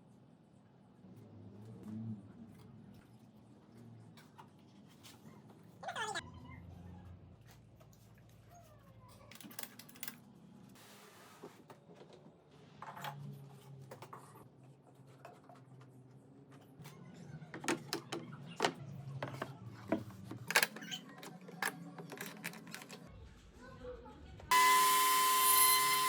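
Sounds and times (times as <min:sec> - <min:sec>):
wooden workpieces clicking and knocking: 0:17.5 - 0:23.1.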